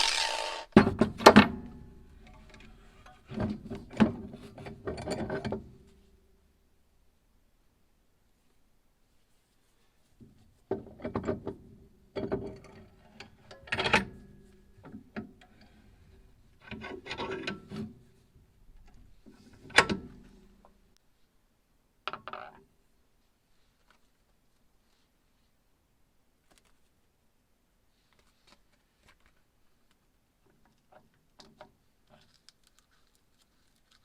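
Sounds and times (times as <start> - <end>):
handling clicks knocks and scrapes: 28.1 - 34.0.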